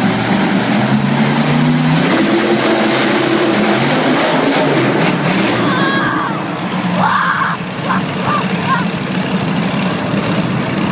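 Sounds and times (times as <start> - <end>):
monster truck engines revving: 0.0 - 10.9
loud arena crowd din: 3.5 - 10.9.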